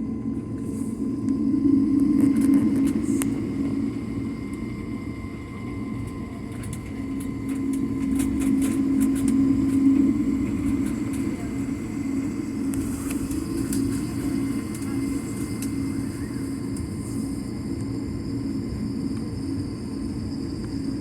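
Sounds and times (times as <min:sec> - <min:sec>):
jet engines and air system drone: 0:00.0 - 0:21.0.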